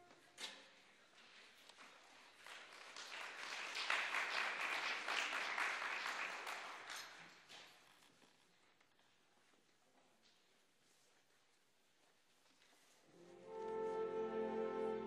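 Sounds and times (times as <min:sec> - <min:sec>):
audience applause: 0:02.0 - 0:07.2.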